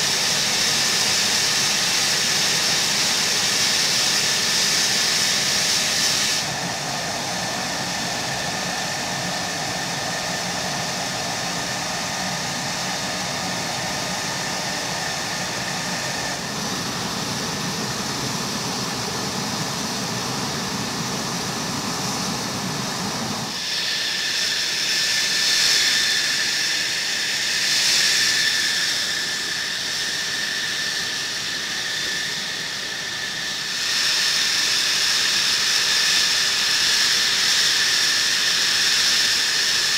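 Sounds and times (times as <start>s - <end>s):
jet engine idling: 0.0s - 39.9s.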